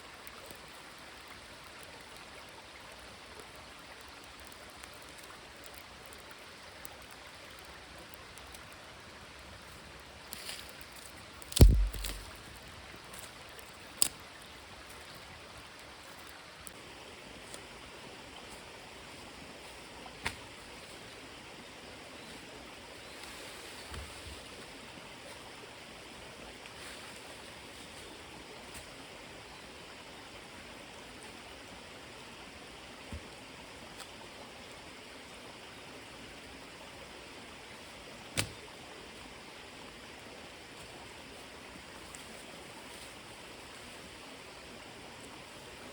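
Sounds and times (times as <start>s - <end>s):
small stream rushing: 0.0s - 45.9s
sharp clicks or knocks: 11.6s - 12.3s.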